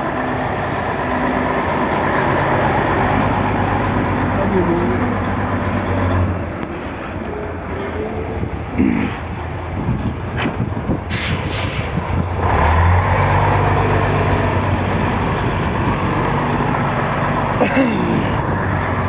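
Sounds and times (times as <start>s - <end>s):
truck diesel engine running: 0.0s - 19.0s
air hiss: 11.1s - 12.0s.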